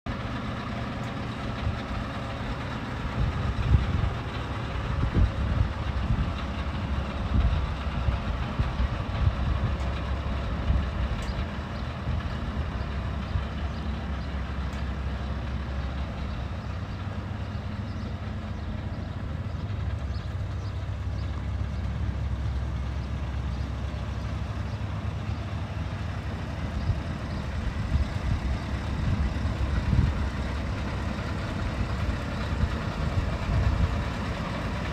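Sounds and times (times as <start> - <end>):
diesel truck engine rumbling: 0.1 - 34.9.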